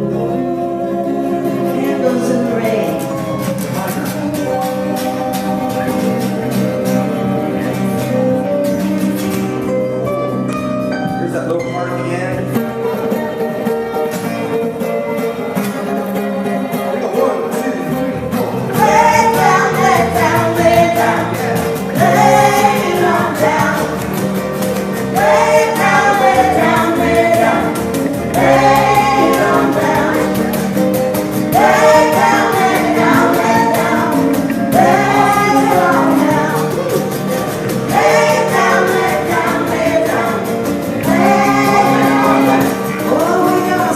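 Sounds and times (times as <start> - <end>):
women singing together: 0.0 - 3.2, 18.7 - 43.9
acoustic guitar playing: 0.0 - 43.9.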